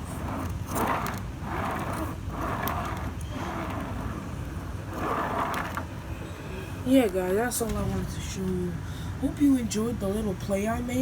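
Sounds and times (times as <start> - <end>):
small wheels rolling: 0.0 - 6.2.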